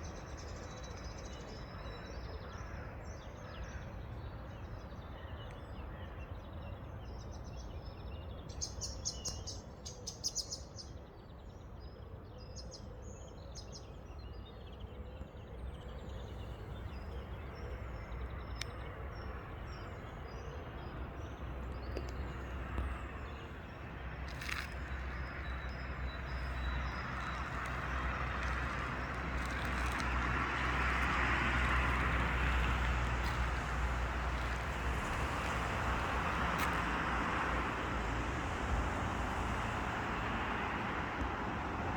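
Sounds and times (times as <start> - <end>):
songbirds chirping and twittering: 0.0 - 41.9.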